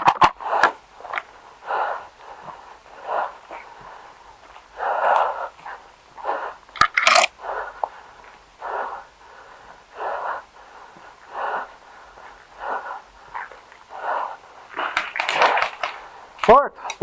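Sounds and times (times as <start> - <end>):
heavy breathing: 0.4 - 17.0.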